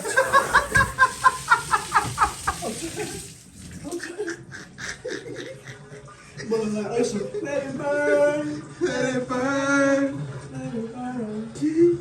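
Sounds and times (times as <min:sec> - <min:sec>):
high-pitched cackling laughter: 0:00.0 - 0:03.2, 0:03.9 - 0:06.5
shower water running: 0:00.0 - 0:07.2.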